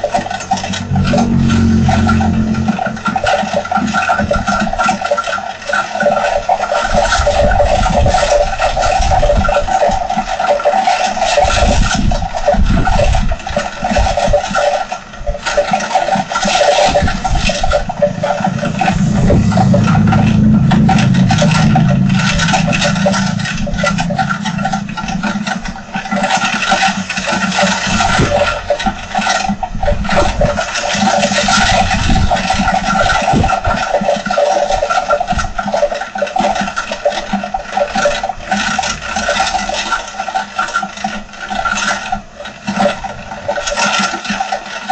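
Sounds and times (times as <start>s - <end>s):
deep rumble: 0.0s - 5.4s, 16.4s - 34.0s
heavy rain with wind: 0.0s - 14.8s, 15.4s - 43.7s.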